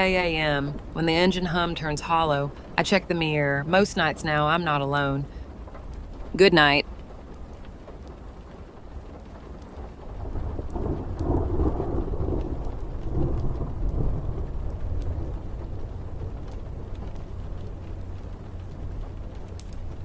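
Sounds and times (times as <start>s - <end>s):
faint crackles: 0.0s - 20.0s
steady rain: 0.0s - 20.0s
rolling thunder: 5.5s - 20.0s.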